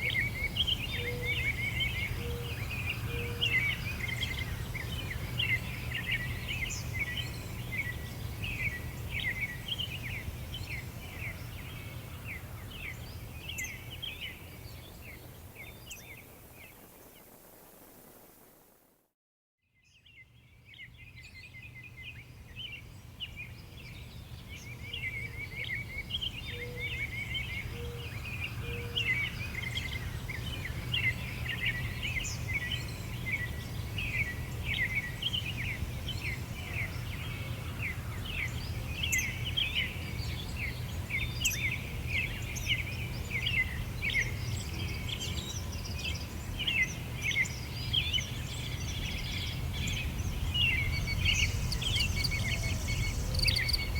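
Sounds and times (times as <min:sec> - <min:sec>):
small birds chirping: 0:29.0 - 0:53.9.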